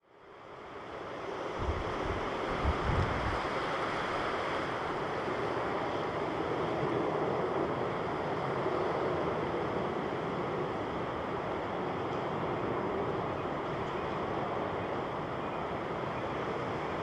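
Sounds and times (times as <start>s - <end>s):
distant jet engine roar: 0.3s - 17.0s
wind buffeting microphone: 1.6s - 3.6s.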